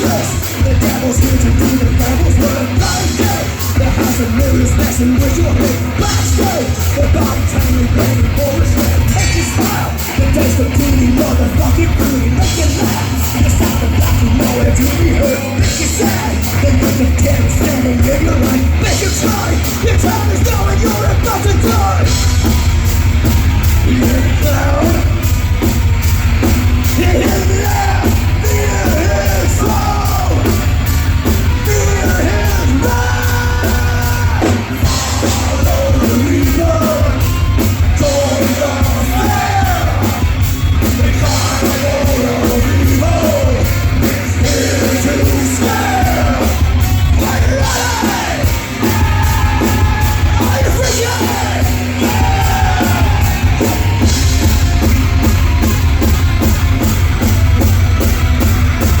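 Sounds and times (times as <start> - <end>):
fast drumming: 0.0 - 59.0
heavy rock band playing: 0.0 - 59.0
lead guitar bending: 0.0 - 59.0.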